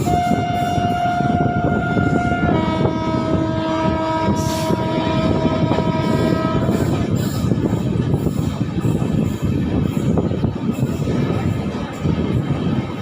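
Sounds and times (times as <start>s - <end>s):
train air horn: 0.0s - 7.0s
train wheels rumbling on rails: 0.0s - 13.0s.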